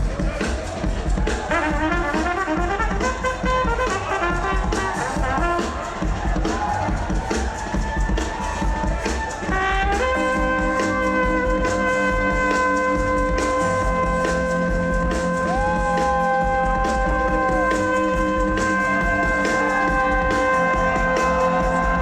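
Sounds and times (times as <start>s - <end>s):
steady drum beat: 0.0s - 22.0s
live band held chord: 9.6s - 22.0s.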